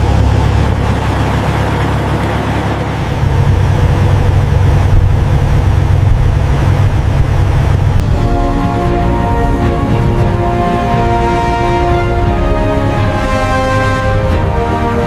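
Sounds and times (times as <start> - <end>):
heavy machinery rumble: 0.0 - 15.0
noisy hiss: 0.0 - 15.0
music with sustained notes: 8.0 - 15.0.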